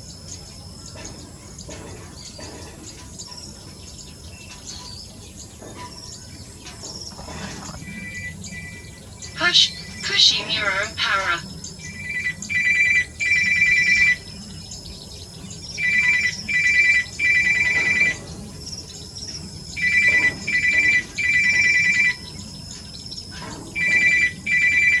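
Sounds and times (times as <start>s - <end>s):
faint high chirps: 7.8s - 12.2s.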